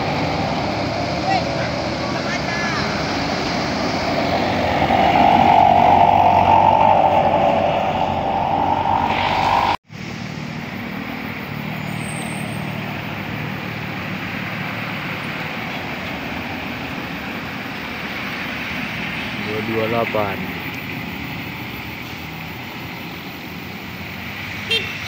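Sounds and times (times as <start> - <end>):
heavy vehicle engine passing: 0.0 - 22.9
low engine drone: 2.7 - 11.6.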